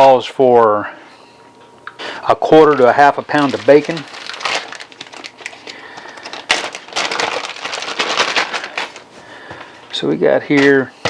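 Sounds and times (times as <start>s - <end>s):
food wrapping crinkling: 2.4s - 9.9s.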